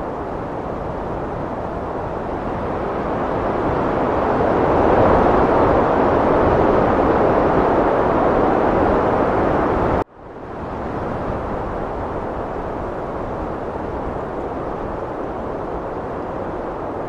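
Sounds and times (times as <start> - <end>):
heavy wind rushing: 0.0 - 17.0.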